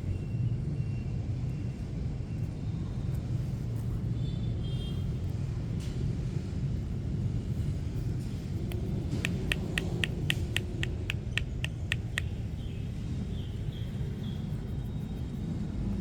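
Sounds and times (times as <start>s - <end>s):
street traffic rumble: 0.0s - 16.0s
small animal chirping: 8.6s - 15.7s.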